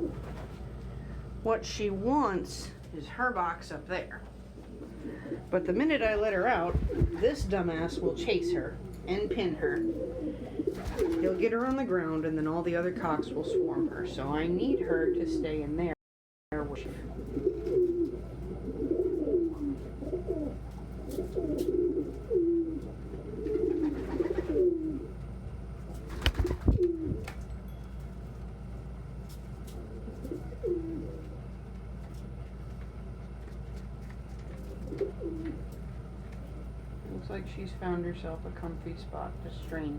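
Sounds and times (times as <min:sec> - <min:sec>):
pigeons cooing: 0:00.0 - 0:00.6, 0:04.5 - 0:05.8, 0:06.5 - 0:11.5, 0:12.9 - 0:15.9, 0:17.0 - 0:25.3, 0:25.9 - 0:27.3, 0:29.7 - 0:31.5, 0:34.5 - 0:35.8.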